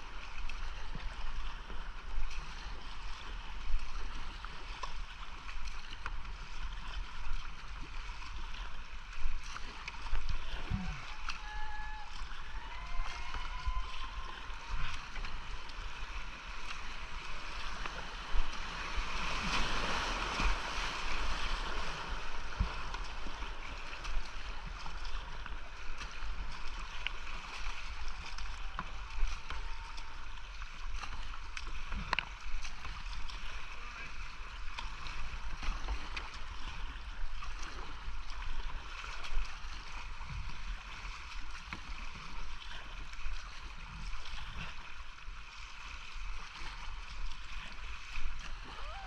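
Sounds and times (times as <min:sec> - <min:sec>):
paddles splashing: 0:00.0 - 0:49.0
whitewater rushing: 0:09.7 - 0:30.6.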